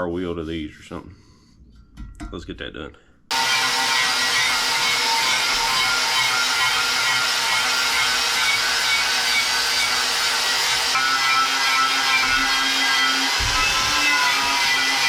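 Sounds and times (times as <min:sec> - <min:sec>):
wire wheel grinding metal: 0:03.3 - 0:15.0.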